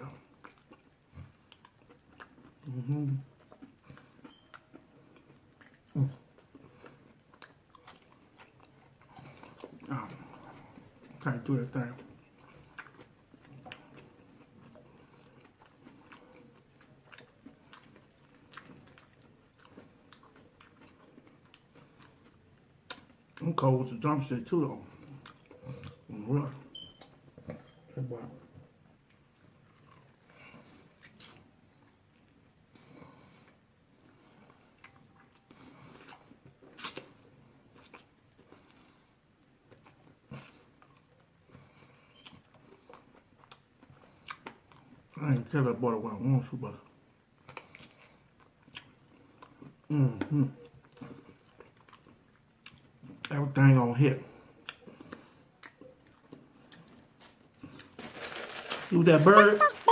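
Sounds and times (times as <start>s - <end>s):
chewing fried chicken: 0.0s - 59.9s
wet mouth clicks: 36.8s - 37.1s.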